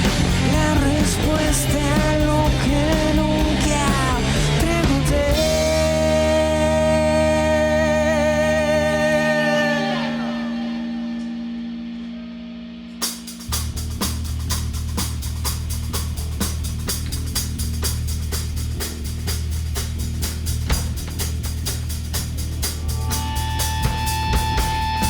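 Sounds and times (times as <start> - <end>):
distorted guitar: 0.0 - 15.4, 20.6 - 25.0
heavy bass: 0.0 - 25.0.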